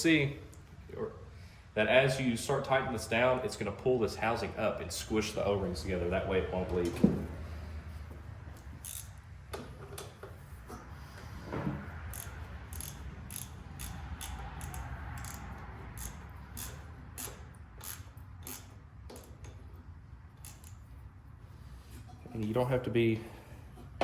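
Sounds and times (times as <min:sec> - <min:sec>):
socket ratchet clicking: 0:08.6 - 0:09.2, 0:12.1 - 0:19.6, 0:20.4 - 0:20.9.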